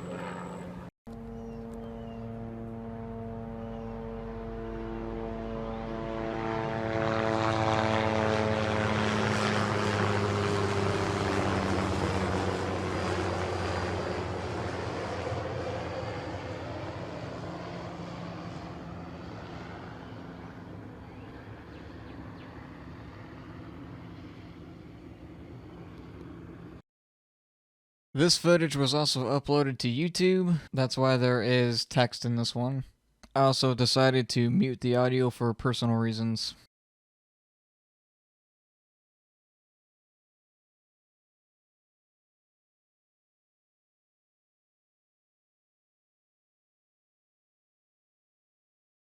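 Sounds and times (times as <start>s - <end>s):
helicopter passing overhead: 0.0s - 26.8s.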